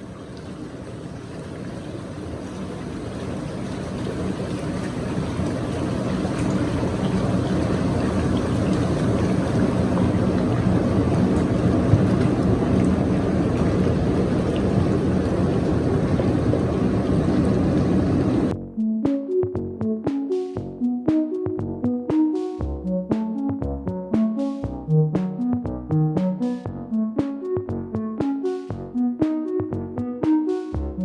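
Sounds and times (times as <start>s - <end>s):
churning water: 0.0s - 18.5s
pump hum: 0.0s - 18.5s.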